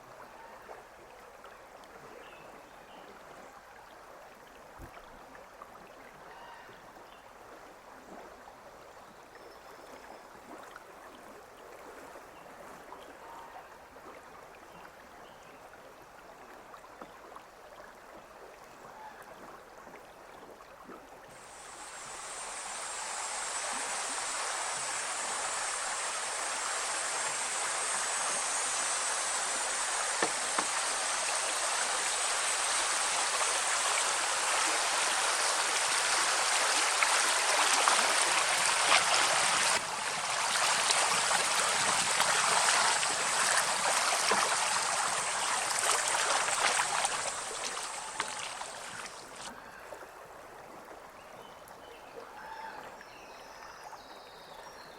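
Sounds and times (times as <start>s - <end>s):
water gurgling: 16.4s - 49.6s
water drips: 21.3s - 49.5s
water rushing: 21.3s - 49.5s.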